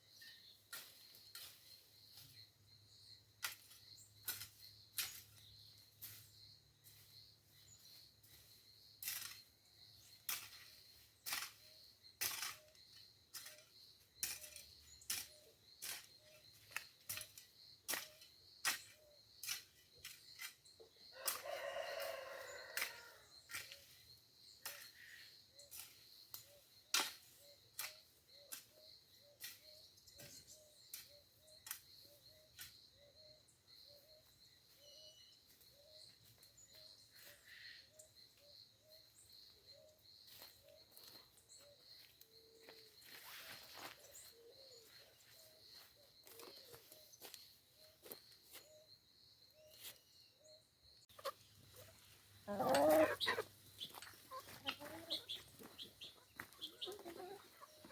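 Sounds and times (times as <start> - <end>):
rooster crowing: 21.1 - 23.3
soft chirps: 27.4 - 57.9.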